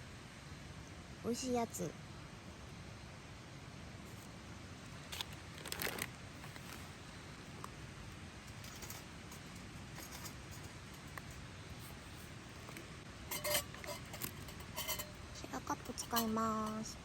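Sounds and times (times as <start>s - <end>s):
steady low hiss: 0.0s - 17.0s
cooking gear rattling and clicking: 8.4s - 11.4s, 12.6s - 17.0s.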